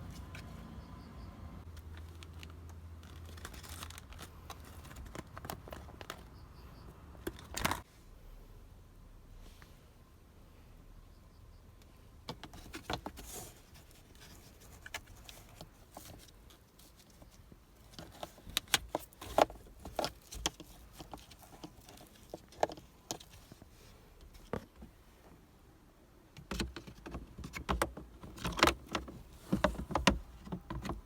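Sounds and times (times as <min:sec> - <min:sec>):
plastic clicks and knocks: 0:26.4 - 0:31.0.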